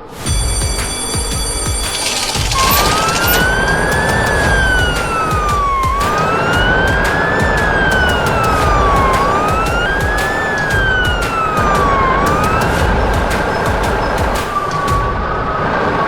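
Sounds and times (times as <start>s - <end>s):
siren wailing: 0.8s - 16.0s.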